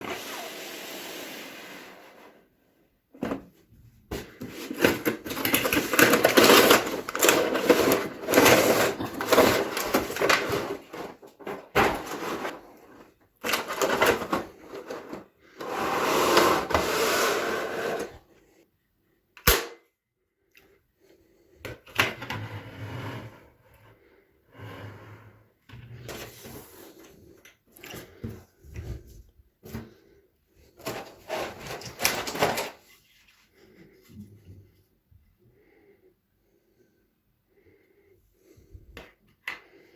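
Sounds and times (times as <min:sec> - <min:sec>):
cardboard and plastic rustling: 0:03.2 - 0:16.9, 0:30.6 - 0:33.6.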